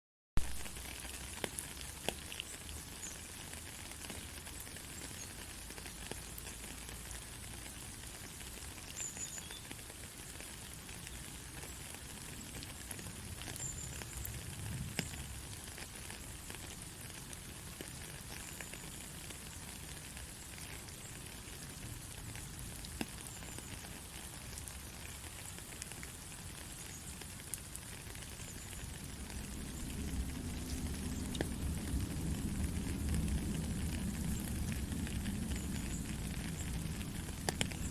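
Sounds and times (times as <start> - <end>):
gentle rain hiss: 0.4 - 37.9.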